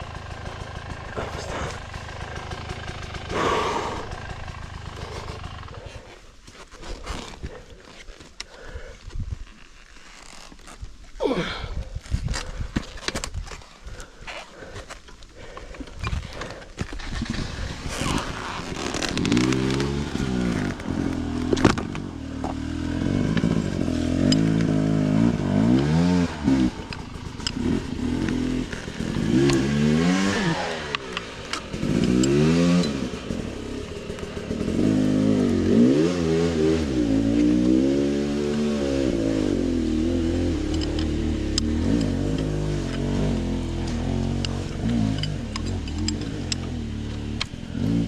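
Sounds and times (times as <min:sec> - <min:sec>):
motorcycle engine revving: 0:00.0 - 0:06.2, 0:16.1 - 0:48.0.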